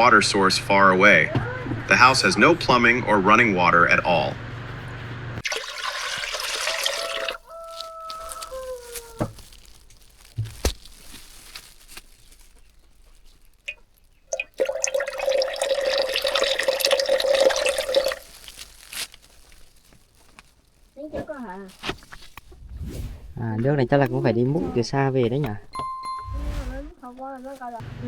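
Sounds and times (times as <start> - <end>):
water pouring into a pot: 5.4 - 7.4, 13.7 - 18.6
rooster crowing: 6.6 - 9.3.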